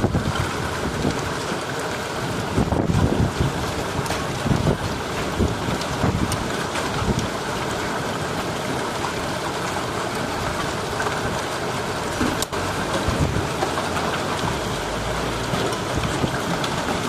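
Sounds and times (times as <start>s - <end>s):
wind buffeting microphone: 0.0s - 1.6s, 2.2s - 8.8s, 12.8s - 17.0s
heavy rain pouring: 0.0s - 17.0s.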